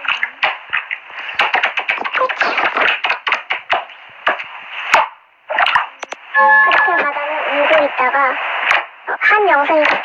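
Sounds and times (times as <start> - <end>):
rapid sharp taps: 0.0 - 5.1.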